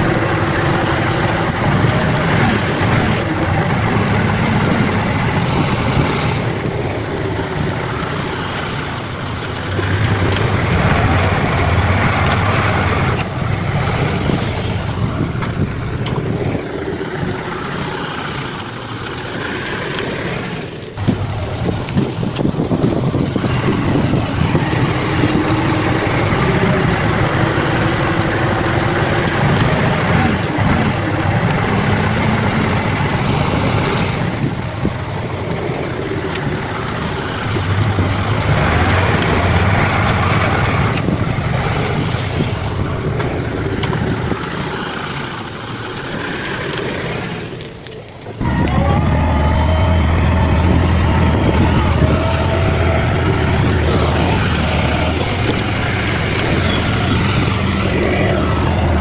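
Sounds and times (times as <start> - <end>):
bulldozer diesel engine: 0.0 - 59.0.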